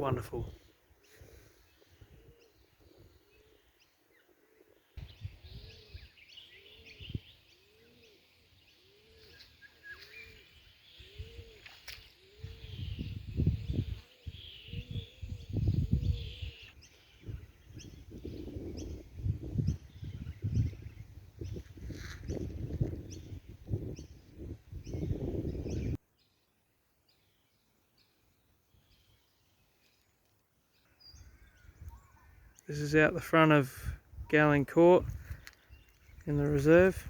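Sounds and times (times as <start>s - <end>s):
low hooting bird calls: 0.0s - 26.0s, 30.7s - 33.1s
birds chirping: 0.0s - 37.0s
rumbling wind gusts: 17.2s - 26.0s.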